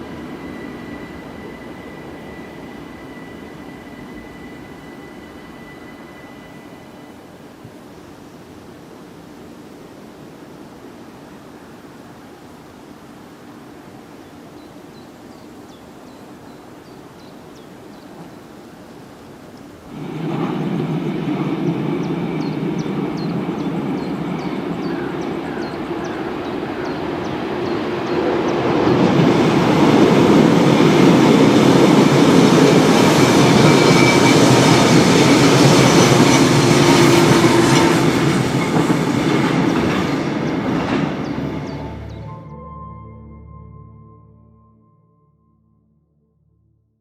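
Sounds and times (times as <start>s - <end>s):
train wheels clattering over rails: 19.9s - 41.8s.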